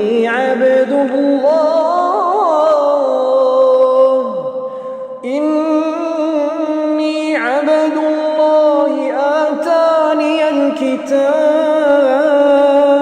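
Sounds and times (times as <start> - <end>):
man reciting melodically: 0.0 - 13.0
breath: 4.6 - 5.2.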